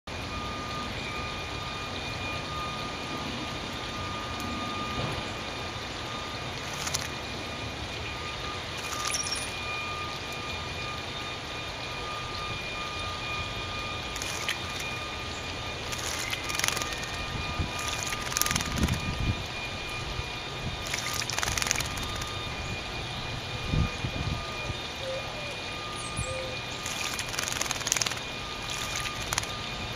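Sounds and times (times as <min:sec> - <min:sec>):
bird splashing in water: 0:06.6 - 0:07.2, 0:08.8 - 0:09.6, 0:14.1 - 0:15.0, 0:15.8 - 0:19.2, 0:20.8 - 0:22.4, 0:26.8 - 0:29.6.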